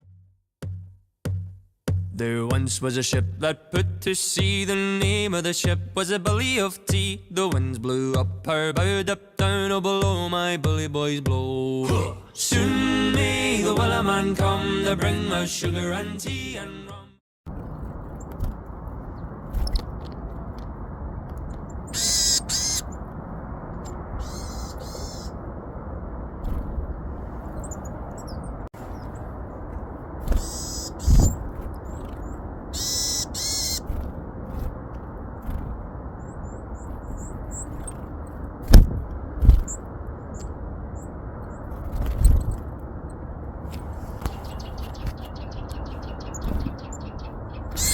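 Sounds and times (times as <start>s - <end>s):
steady rushing background: 17.5s - 47.8s
birds harsh calls: 21.7s - 23.0s, 23.8s - 25.4s, 30.2s - 34.7s, 44.0s - 47.9s
birds higher calls: 21.7s - 23.0s, 23.8s - 25.4s, 30.2s - 34.7s, 44.0s - 47.9s
loud dull thumps: 38.6s - 39.7s.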